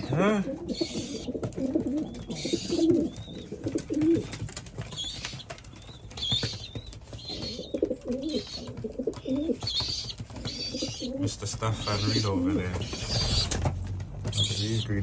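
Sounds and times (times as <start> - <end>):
pigeons cooing: 0.0 - 15.0
high squeaky calls: 0.7 - 1.3, 9.6 - 13.6, 14.3 - 15.0.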